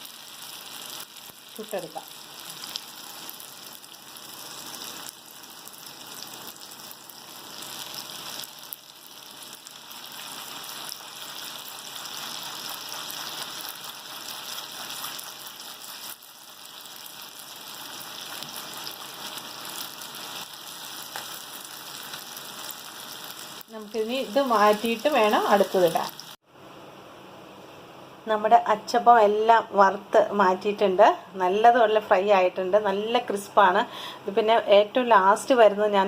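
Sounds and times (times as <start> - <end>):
batter sizzling in hot oil: 0.0 - 26.4.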